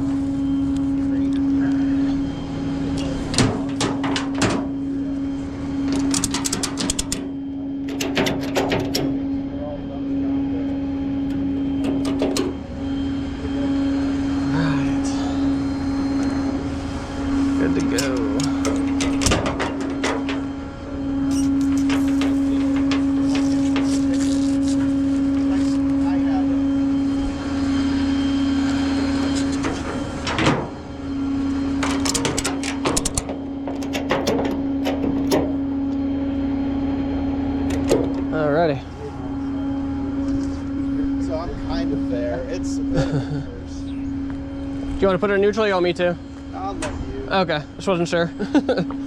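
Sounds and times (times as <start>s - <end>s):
tow truck machinery droning: 0.0s - 49.0s
vehicle engine humming: 0.0s - 49.0s
sharp metallic clicks: 5.9s - 7.3s, 31.8s - 35.5s.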